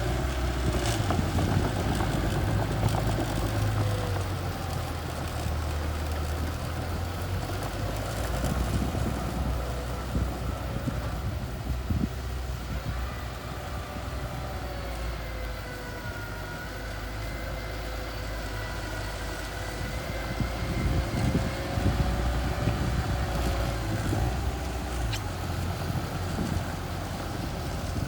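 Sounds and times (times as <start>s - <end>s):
bulldozer engine rumbling: 0.0s - 28.0s
high engine whine: 0.0s - 28.0s.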